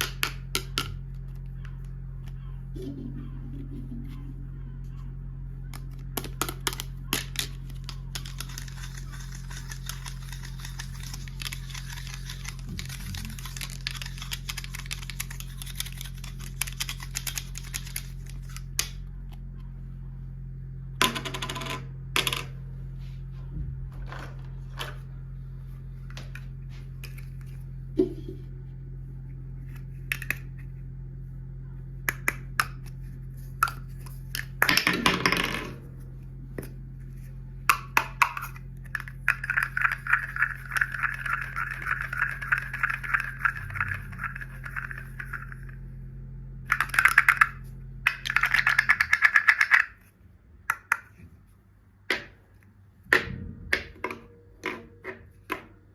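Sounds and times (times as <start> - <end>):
low hum: 0.0 - 55.9
plastic toys clicking and tapping: 5.8 - 19.0, 37.7 - 45.7, 46.7 - 50.1, 50.7 - 51.2.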